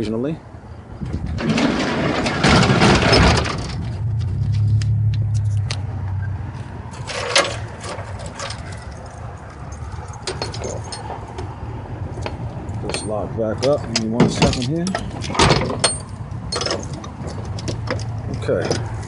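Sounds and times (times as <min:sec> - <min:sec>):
roll-up door rumble: 0:01.0 - 0:04.7, 0:07.0 - 0:19.0
metallic clicks of latch and keys: 0:07.0 - 0:11.5, 0:12.2 - 0:19.0.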